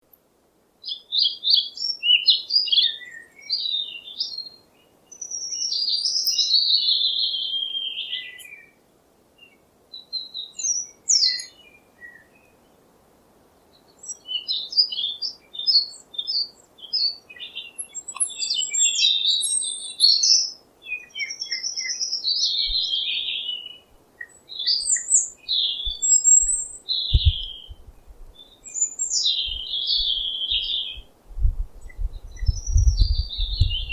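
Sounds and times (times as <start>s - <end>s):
songbirds singing: 0.8s - 12.9s, 13.6s - 33.9s
low thumps: 25.9s - 28.4s, 29.4s - 30.2s, 31.0s - 33.9s.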